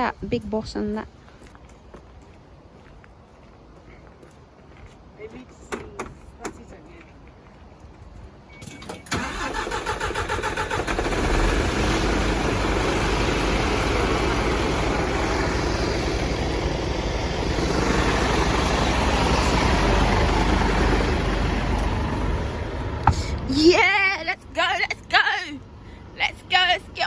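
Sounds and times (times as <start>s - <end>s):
engine starter cranking: 8.6s - 12.4s
engine idling: 9.2s - 23.5s.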